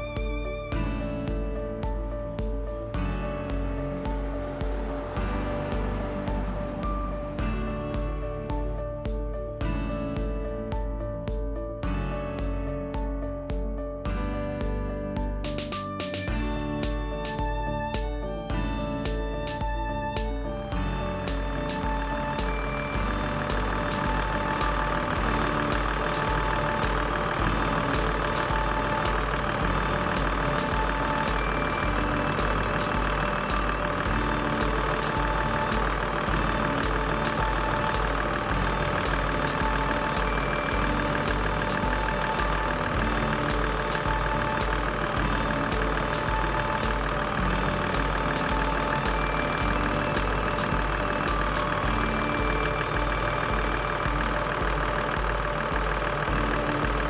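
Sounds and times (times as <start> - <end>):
car engine idling: 3.2 - 9.0, 19.4 - 57.0.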